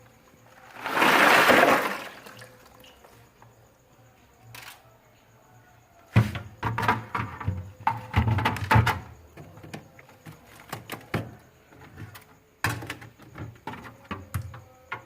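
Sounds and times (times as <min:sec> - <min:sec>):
rush of water: 0:00.8 - 0:02.5.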